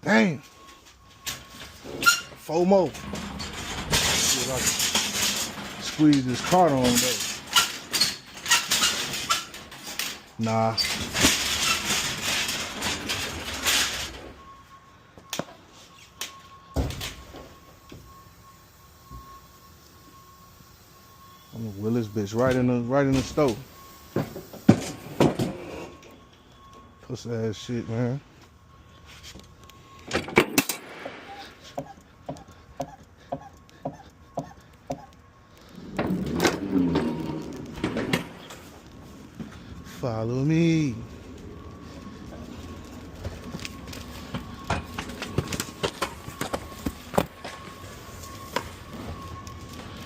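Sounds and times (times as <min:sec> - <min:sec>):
faint steady tone: 0:00.0 - 0:08.4, 0:09.1 - 0:50.0
cart rolling rumble: 0:00.9 - 0:14.6, 0:35.3 - 0:50.0
metal cart rattling and clanking: 0:01.2 - 0:14.4
wheel squeal: 0:01.8 - 0:14.2, 0:31.2 - 0:38.7.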